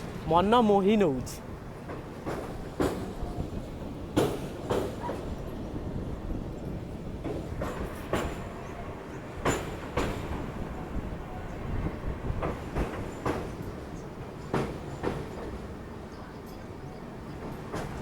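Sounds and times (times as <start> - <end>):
train rumbling: 0.0 - 18.0
train wheels clacking over rail joints: 1.6 - 5.6, 7.0 - 11.2, 11.8 - 15.9, 17.4 - 18.0.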